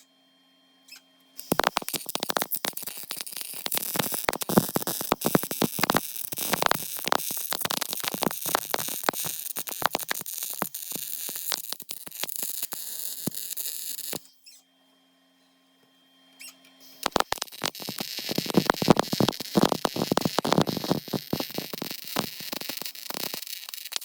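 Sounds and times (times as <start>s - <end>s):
welder crackling on sheet metal: 1.4s - 14.3s, 16.8s - 24.0s.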